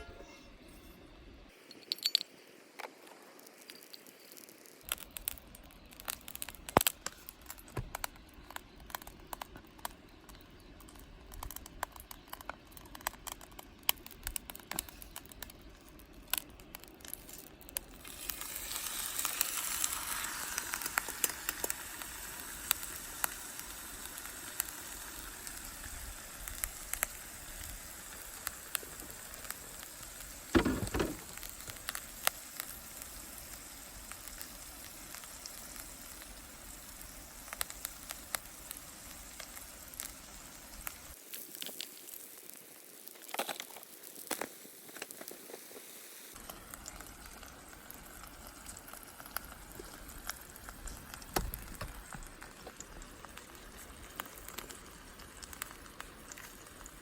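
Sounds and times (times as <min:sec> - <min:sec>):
steady sizzling: 0:00.0 - 0:57.0
campfire crackling and popping: 0:02.5 - 0:57.0
short loud thud: 0:30.6 - 0:31.2.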